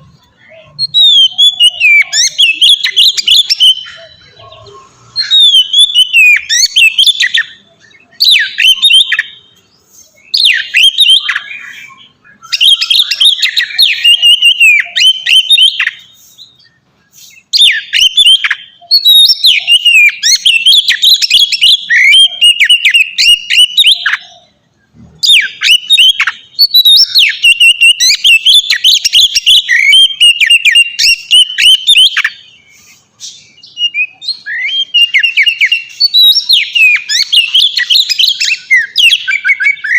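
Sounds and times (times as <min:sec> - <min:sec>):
songbird whistling song: 0:00.0 - 0:39.9.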